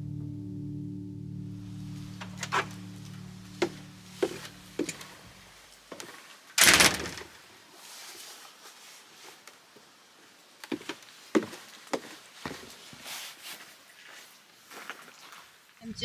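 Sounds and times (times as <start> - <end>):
door shutting thud: 3.6 - 5.2, 6.6 - 7.4
door knocks: 6.6 - 7.3
door latch clicks: 6.6 - 7.3.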